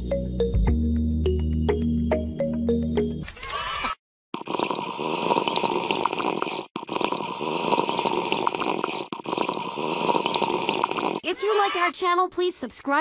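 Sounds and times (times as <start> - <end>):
liquid slurped through straws: 4.4 - 11.3.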